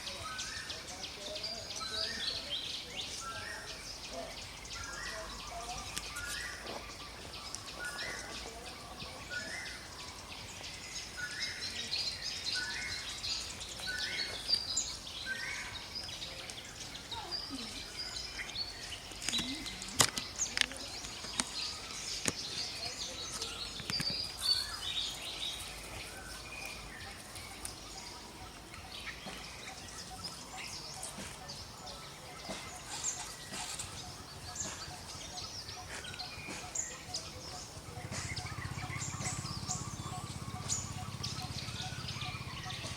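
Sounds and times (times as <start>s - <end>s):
high bird chirps: 3.1s - 42.9s.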